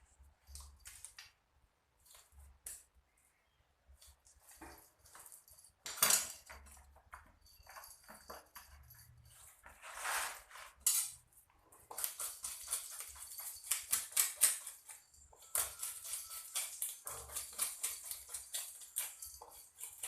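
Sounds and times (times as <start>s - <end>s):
knife scraping with metallic clinks: 10.7s - 11.2s, 11.9s - 20.0s.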